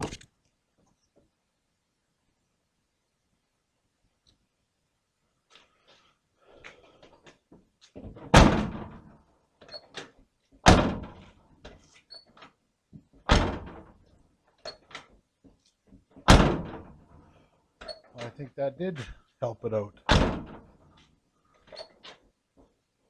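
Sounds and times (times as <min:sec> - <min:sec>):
truck door slamming with rattle: 0:08.1 - 0:09.1, 0:10.6 - 0:11.2, 0:13.3 - 0:13.9, 0:16.2 - 0:17.0, 0:20.1 - 0:20.7.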